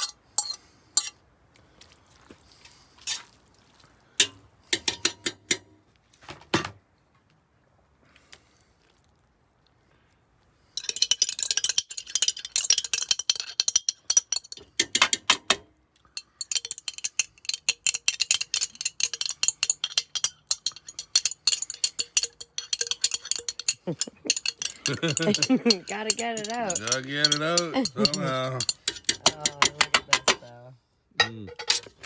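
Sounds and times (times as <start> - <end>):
utensil scraping cooking pot: 0.0 - 1.2, 10.8 - 15.5, 16.2 - 30.5, 31.5 - 32.0.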